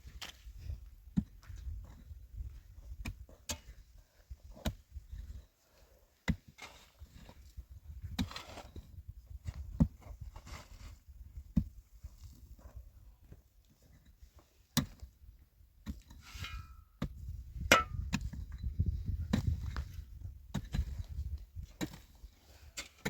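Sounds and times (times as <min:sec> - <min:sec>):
faintly ringing scraping: 0:16.3 - 0:16.9.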